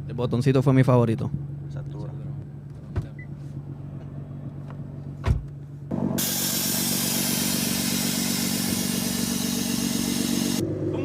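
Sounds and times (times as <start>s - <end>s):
car engine running: 0.0s - 11.0s
thump: 5.2s - 5.5s
strong hiss: 6.2s - 10.6s.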